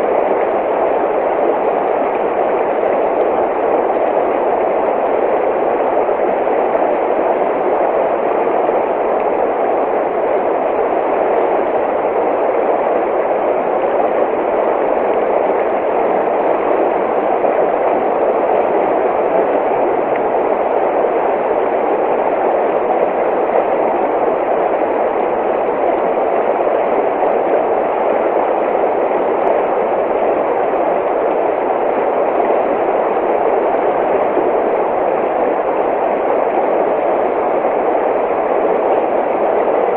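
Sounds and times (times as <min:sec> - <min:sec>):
rushing stream water: 0:00.0 - 0:39.9.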